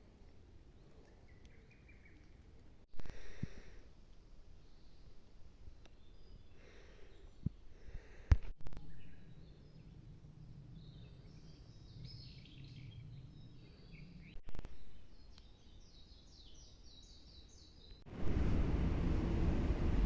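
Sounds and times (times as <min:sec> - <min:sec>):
small birds chirping: 0:00.7 - 0:02.7, 0:04.6 - 0:07.6, 0:08.8 - 0:18.1
low background rumble: 0:18.1 - 0:20.0.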